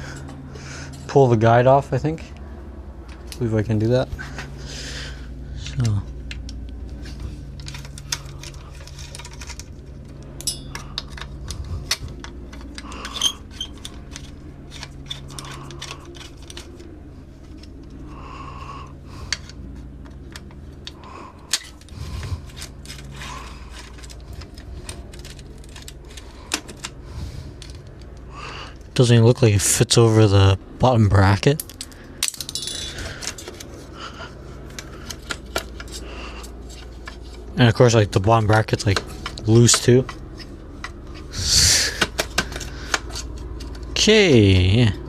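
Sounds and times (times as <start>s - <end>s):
steady low hum: 0.0s - 45.0s
metal clicks of hand tools: 10.4s - 16.6s.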